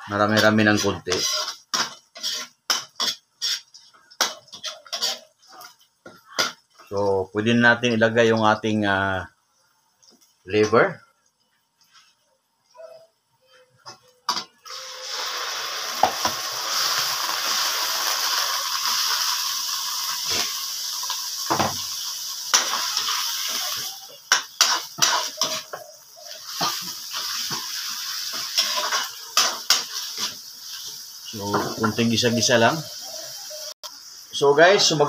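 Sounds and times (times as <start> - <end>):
liver sizzling in hot oil: 0.0 - 10.8, 14.3 - 35.0
spoon scraping a wok: 0.4 - 5.8, 22.4 - 31.0.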